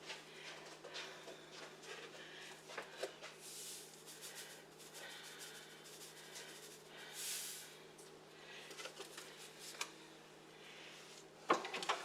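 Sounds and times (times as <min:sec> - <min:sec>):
salt pouring hiss: 0:03.4 - 0:07.8.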